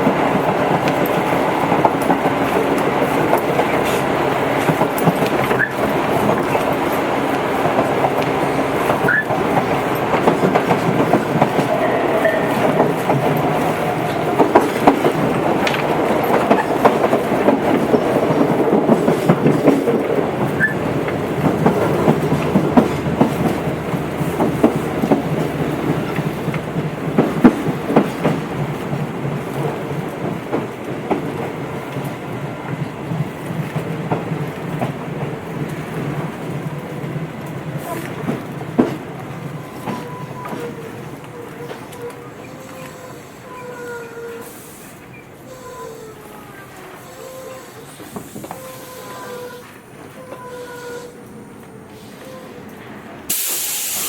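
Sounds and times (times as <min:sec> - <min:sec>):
train wheels rumbling: 0:00.0 - 0:54.0
high wheel squeals: 0:39.5 - 0:51.2.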